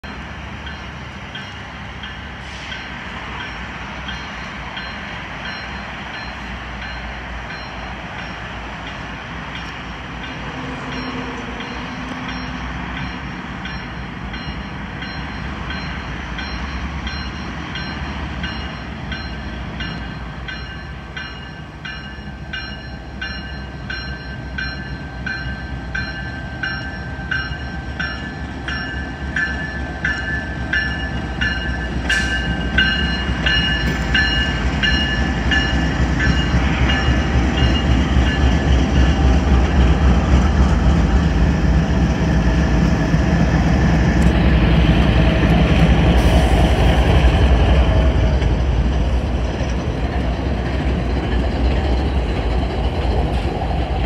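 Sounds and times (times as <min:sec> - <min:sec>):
diesel locomotive engine rumble: 0:00.0 - 0:54.0.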